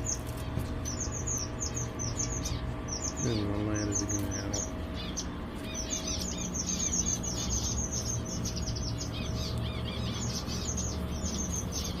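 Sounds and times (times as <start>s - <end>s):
flock of finches chirping: 0.0s - 12.0s
low hum: 0.0s - 12.0s.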